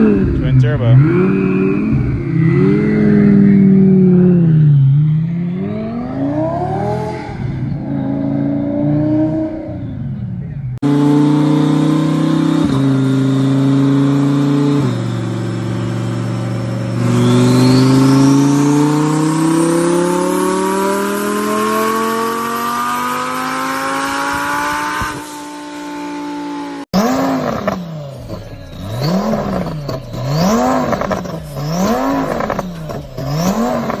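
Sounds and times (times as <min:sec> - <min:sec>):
car engine accelerating and revving: 0:00.0 - 0:34.0
turbo whistle: 0:14.9 - 0:19.4.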